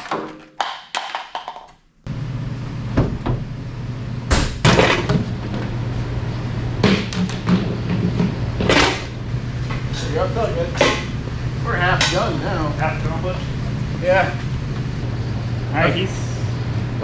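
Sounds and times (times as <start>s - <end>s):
steady low hum: 2.0s - 17.0s.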